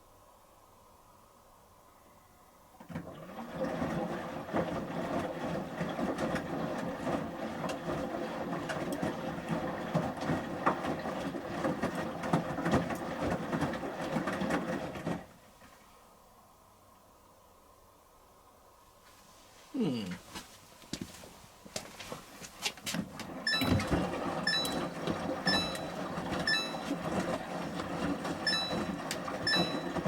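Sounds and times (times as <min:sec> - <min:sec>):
washing machine drum turning: 0:23.2 - 0:30.0
water sloshing: 0:23.3 - 0:30.0.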